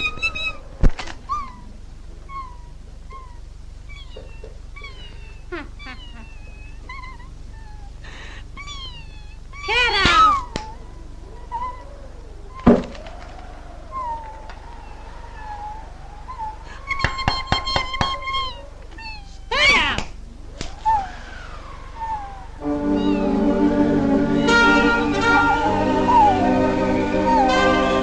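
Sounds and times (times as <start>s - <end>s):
cartoon animal calls: 0.0s - 28.0s
sharp knocks: 12.6s - 13.0s.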